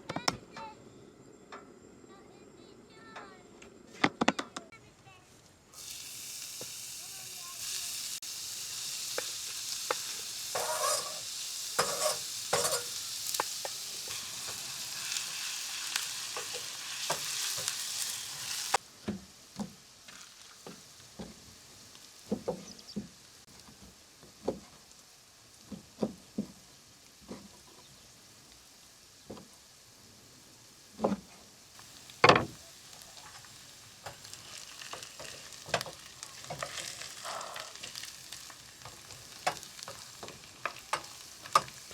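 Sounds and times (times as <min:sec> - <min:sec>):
food sizzling in a frying pan: 0:05.7 - 0:41.9
utensil scraping and stirring: 0:09.0 - 0:18.8, 0:32.9 - 0:41.9
utensils knocking on cookware: 0:11.8 - 0:14.7.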